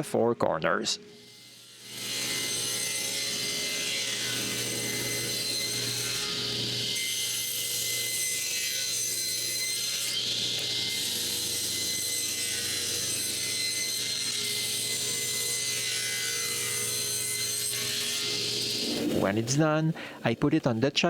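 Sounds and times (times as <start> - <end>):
electric saw cutting wood: 1.1 - 19.5.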